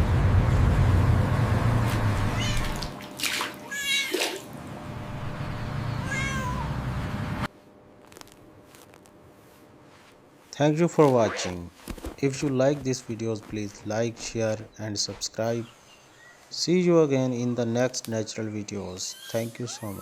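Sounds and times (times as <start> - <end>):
cat meowing: 2.3 - 2.8, 3.6 - 4.2, 5.9 - 6.8.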